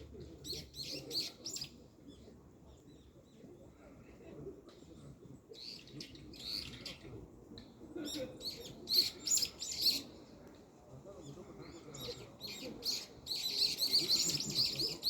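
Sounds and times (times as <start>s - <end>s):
small birds chirping: 11.2s - 15.0s.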